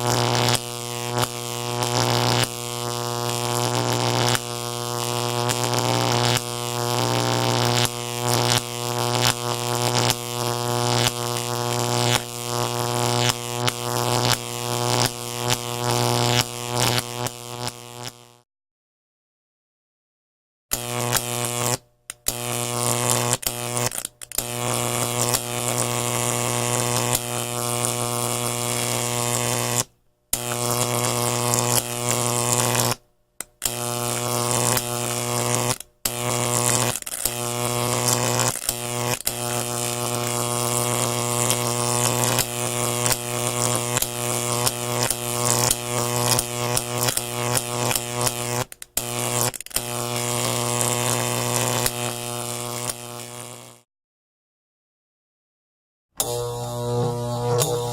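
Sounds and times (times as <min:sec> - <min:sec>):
motor humming: 0:56.2 - 0:57.9.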